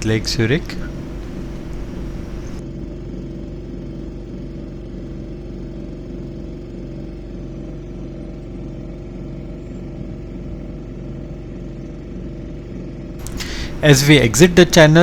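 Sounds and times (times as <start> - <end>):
outboard motor running: 0.0 - 2.6, 13.2 - 14.9.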